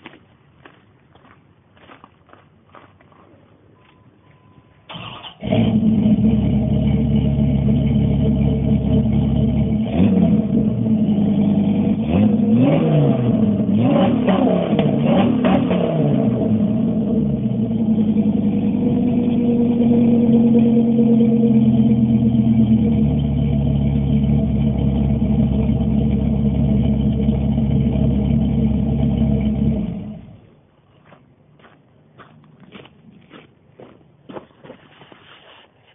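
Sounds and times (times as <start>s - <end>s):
engine idling and revving: 5.0s - 30.4s.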